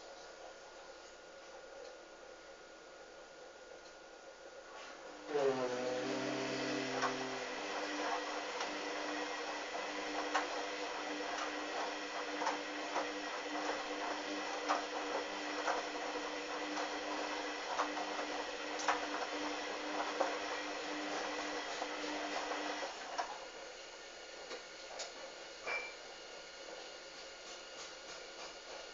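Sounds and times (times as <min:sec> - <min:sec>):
washing machine motor humming: 0:05.1 - 0:25.4.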